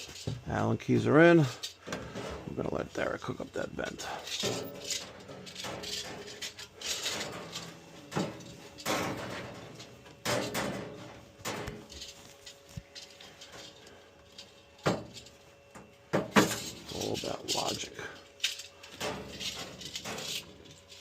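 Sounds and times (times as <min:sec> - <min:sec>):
tools rustling and scraping: 0:00.0 - 0:21.0
sharp knocks and clatters: 0:04.3 - 0:13.8, 0:14.4 - 0:17.8.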